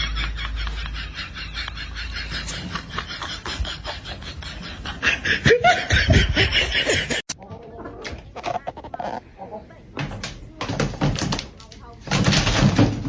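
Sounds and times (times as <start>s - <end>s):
people laughing: 0.0s - 7.3s.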